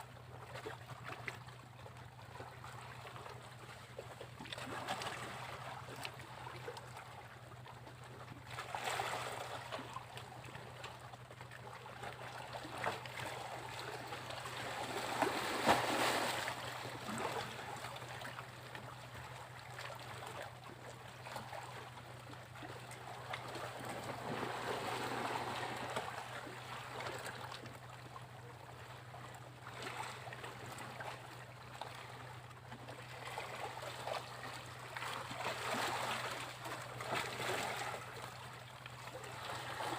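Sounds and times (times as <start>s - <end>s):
sea waves breaking on beach: 13.7s - 18.0s, 23.8s - 27.3s.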